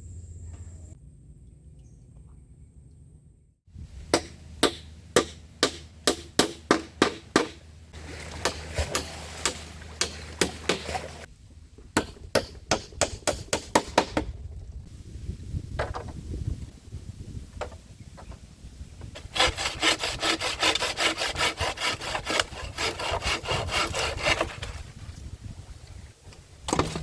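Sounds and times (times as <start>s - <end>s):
chopping strikes on wood: 4.1s - 7.6s, 8.4s - 11.0s, 12.0s - 14.3s.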